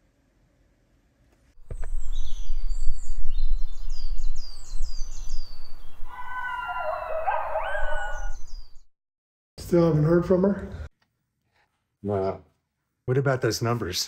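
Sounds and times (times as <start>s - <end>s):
birds chirping: 1.6s - 8.9s
low animal call: 6.1s - 8.5s.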